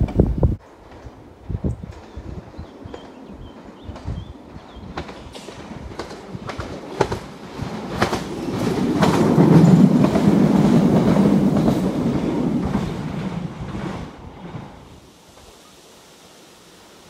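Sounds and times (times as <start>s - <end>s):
electric train rumbling past: 0.0s - 17.0s
wheels clicking over rail joints: 3.9s - 14.7s.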